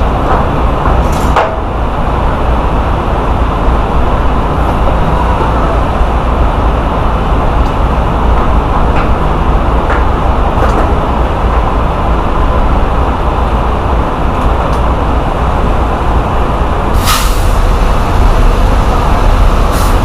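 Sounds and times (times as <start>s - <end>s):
diesel truck engine rumbling: 0.0s - 20.0s
air hiss: 17.0s - 20.0s.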